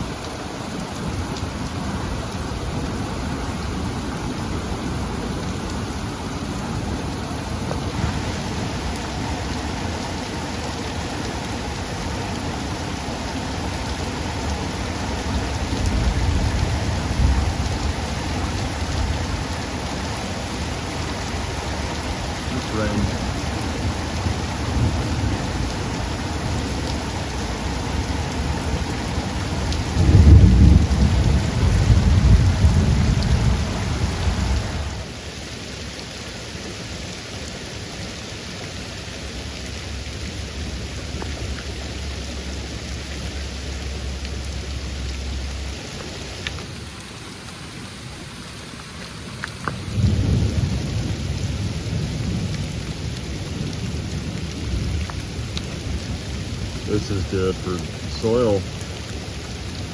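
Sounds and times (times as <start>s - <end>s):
heavy rain: 0.0s - 59.9s
thunder rumbling: 22.7s - 35.0s, 49.8s - 56.5s.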